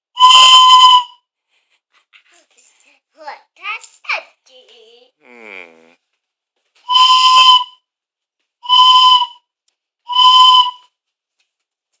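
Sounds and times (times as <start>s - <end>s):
train whistle blasts: 0.1s - 1.2s, 6.9s - 7.8s, 8.6s - 9.5s, 10.1s - 10.9s.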